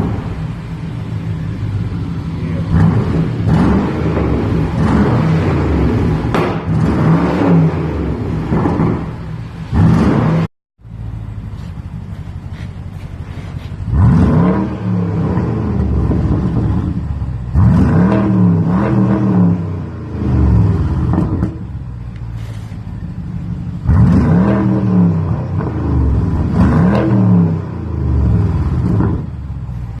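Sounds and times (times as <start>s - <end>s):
deep engine idle rumble: 0.0s - 4.8s, 10.8s - 14.0s, 20.6s - 24.0s
car engine revving: 0.0s - 30.0s.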